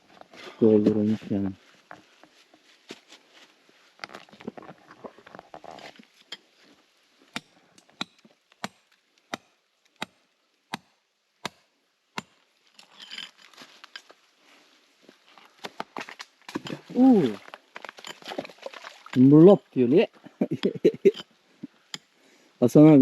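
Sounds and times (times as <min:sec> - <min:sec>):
rubble scraping and rustling: 0:00.0 - 0:09.0, 0:12.2 - 0:19.5
hand tool striking stone: 0:07.3 - 0:13.3.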